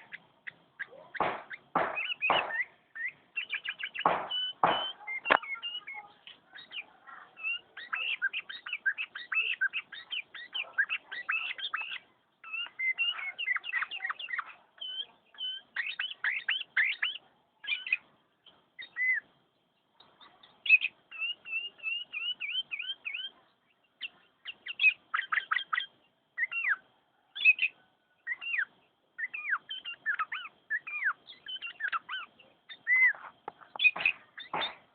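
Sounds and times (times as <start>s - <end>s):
bulbul singing: 0.0s - 34.9s.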